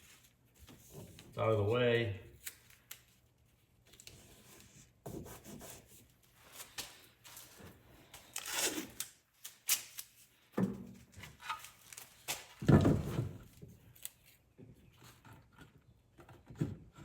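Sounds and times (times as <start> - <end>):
rubbing and scraping handling noise: 0.0 - 9.0, 10.1 - 17.0.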